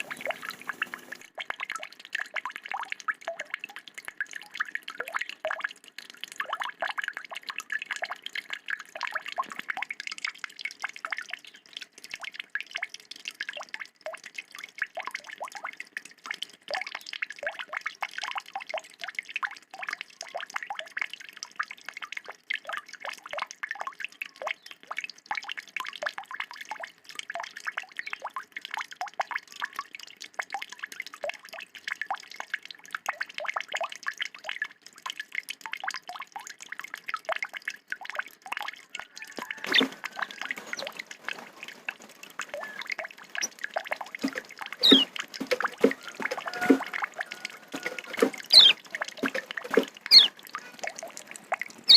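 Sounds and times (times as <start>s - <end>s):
songbird chattering song: 44.8s - 45.1s, 48.5s - 48.8s, 50.1s - 50.3s.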